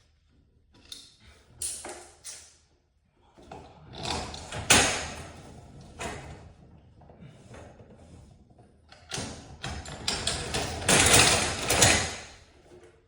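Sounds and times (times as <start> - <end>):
mechanical rattling and clattering: 9.0 - 12.4.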